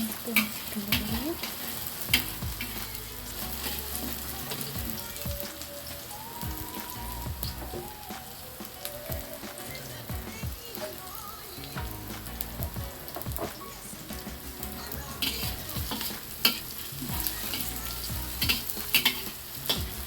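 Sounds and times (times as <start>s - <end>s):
spatula scraping pan: 0.0s - 6.1s, 13.1s - 20.0s
shallots sizzling in hot oil: 0.0s - 20.0s.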